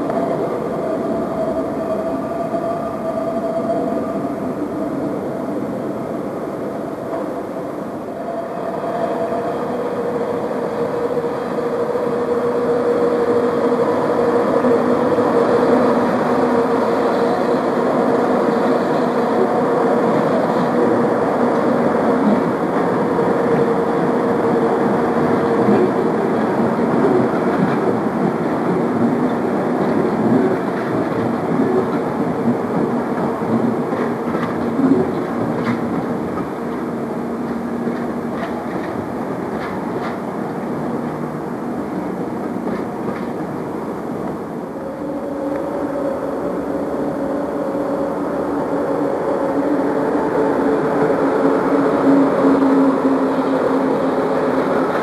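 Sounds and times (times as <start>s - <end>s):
passenger train rumbling past: 0.0s - 55.0s
wheels clacking over rail joints: 25.2s - 41.3s.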